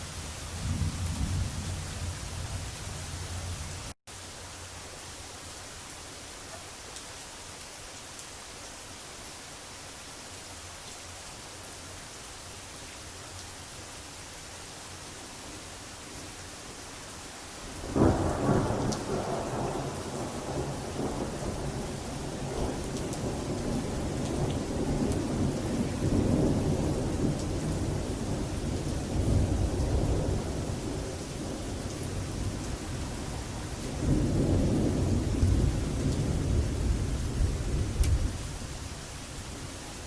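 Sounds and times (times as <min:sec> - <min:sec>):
heavy rain: 0:00.0 - 0:40.0
thunder rumbling: 0:17.9 - 0:38.4.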